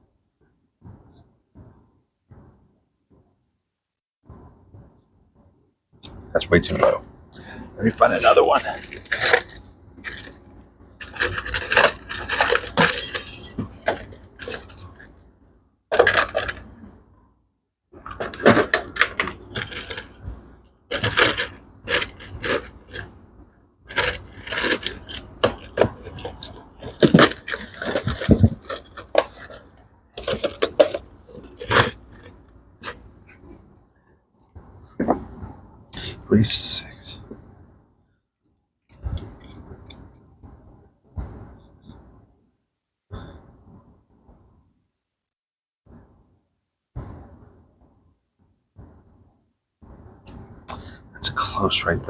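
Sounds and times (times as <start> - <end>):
small metal parts clinking: 11.0 - 14.9, 18.4 - 20.2, 20.9 - 23.1, 23.9 - 25.9, 30.2 - 32.5.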